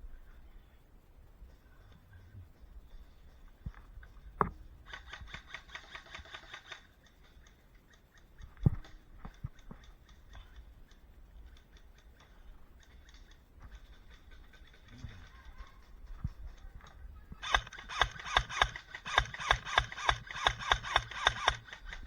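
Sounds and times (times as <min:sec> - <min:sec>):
scattered ticks: 0:02.6 - 0:22.0
airsoft rifle full-auto burst: 0:04.9 - 0:06.9, 0:17.4 - 0:22.0
gearbox whine: 0:17.4 - 0:22.0.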